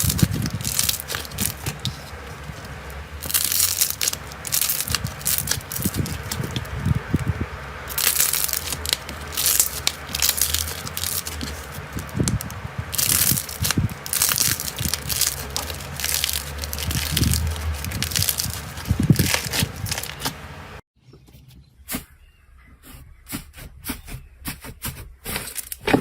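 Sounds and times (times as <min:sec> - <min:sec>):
crunchy slime squeezed by hand: 0:00.0 - 0:07.1, 0:07.9 - 0:20.3.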